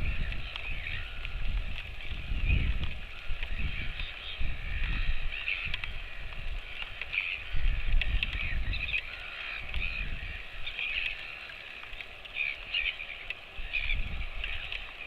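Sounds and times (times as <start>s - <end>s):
birds calling: 0.0s - 15.0s.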